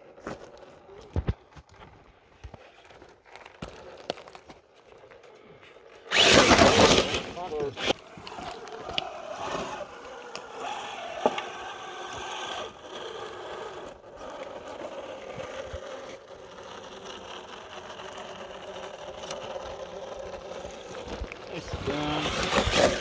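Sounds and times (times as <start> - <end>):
sharp clicks and scrapes: 6.1 - 23.0
toy truck motor whining: 6.1 - 23.0.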